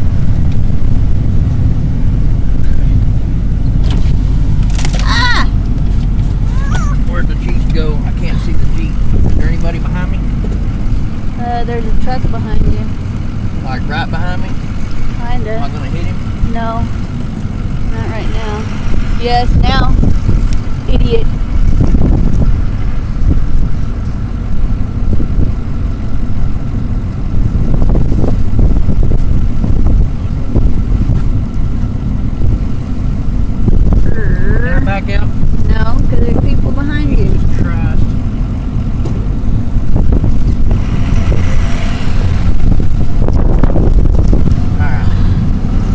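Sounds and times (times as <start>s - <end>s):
vehicle engine rumble: 0.0s - 45.9s.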